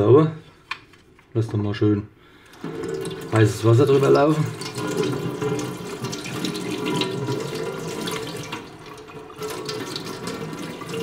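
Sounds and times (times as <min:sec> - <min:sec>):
tap water running and splashing: 0:02.5 - 0:11.0.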